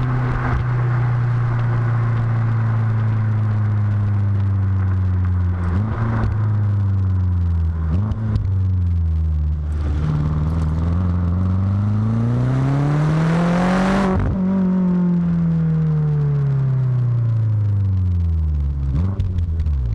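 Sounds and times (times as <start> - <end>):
car engine revving: 0.0 - 19.9.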